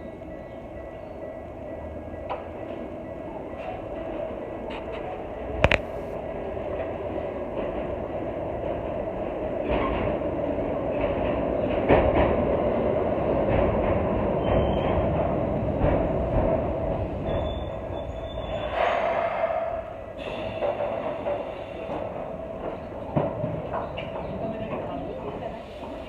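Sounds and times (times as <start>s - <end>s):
high-pitched wheel squeals: 17.3s - 19.9s.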